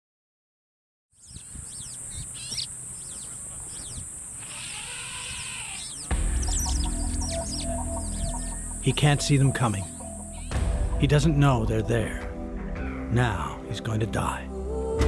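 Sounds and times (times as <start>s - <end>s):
birds chirping and calling: 1.2s - 14.4s
high-pitched drone: 6.1s - 12.8s
low music with held tones: 6.1s - 15.0s.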